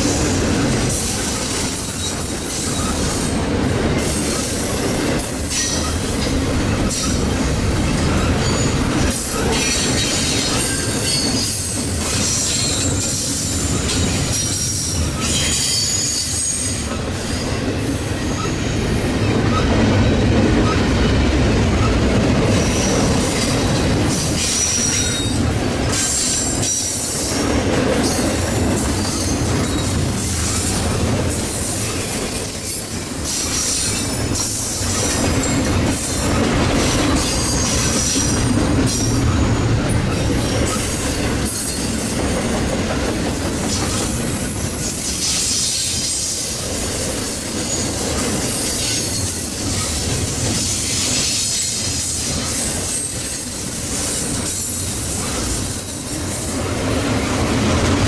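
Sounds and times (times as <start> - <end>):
train wheels rumbling and rattling: 0.0 - 58.0
high wheel squeals: 7.9 - 17.5, 29.0 - 30.8, 43.7 - 46.1.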